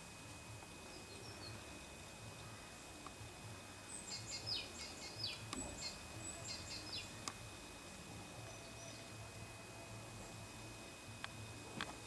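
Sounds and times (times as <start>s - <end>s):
small bird chirping: 3.8s - 7.2s.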